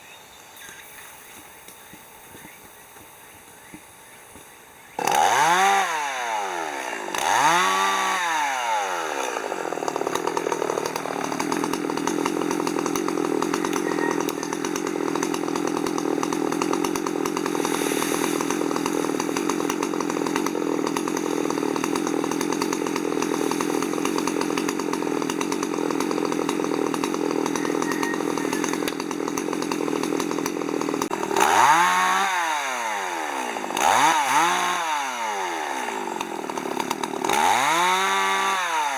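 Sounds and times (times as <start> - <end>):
chainsaw cutting wood: 0.6 - 38.9.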